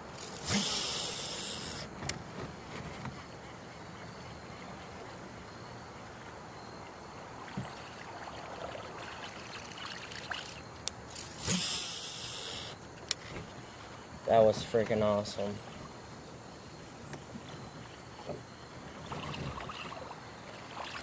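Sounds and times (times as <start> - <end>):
river water trickling: 3.2 - 13.1, 17.8 - 21.0.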